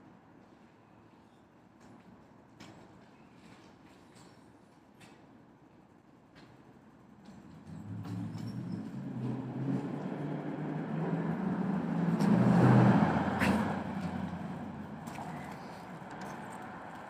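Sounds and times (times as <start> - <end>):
vehicle engine driving past: 7.6 - 17.0.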